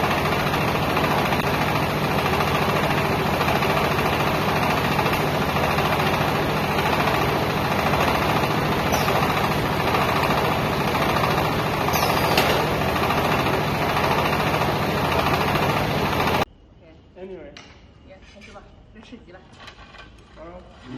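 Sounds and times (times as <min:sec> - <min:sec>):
baler machine humming and rattling: 0:00.0 - 0:16.5
machine squeals: 0:11.8 - 0:12.7.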